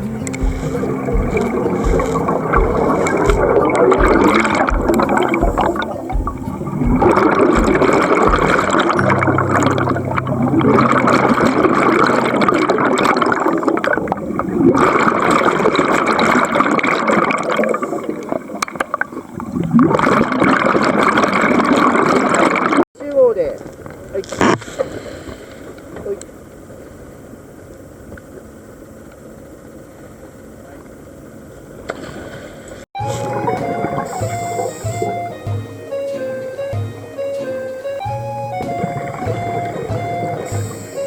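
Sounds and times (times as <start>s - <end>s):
underwater regulator bubbles gurgling: 0.0s - 22.8s, 33.0s - 35.4s, 38.5s - 41.0s.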